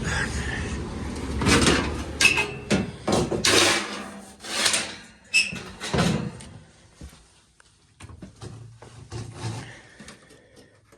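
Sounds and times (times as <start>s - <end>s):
hard objects knocking and clanking: 1.3s - 4.9s.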